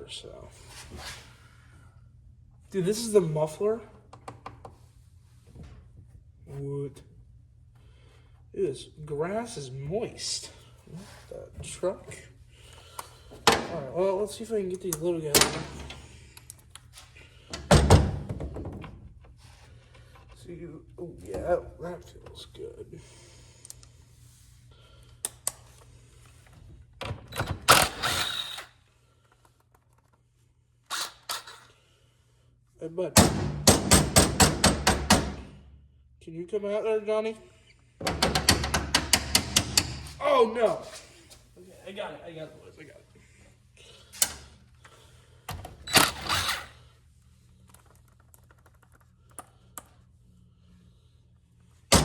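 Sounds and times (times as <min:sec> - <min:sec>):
hand tools clicking on bolts: 0:38.1 - 0:40.2.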